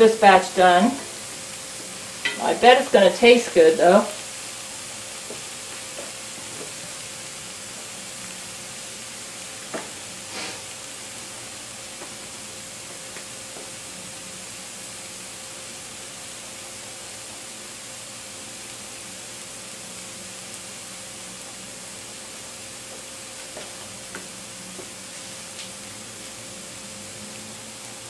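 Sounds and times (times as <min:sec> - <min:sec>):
patties sizzling in oil: 0:00.0 - 0:28.0.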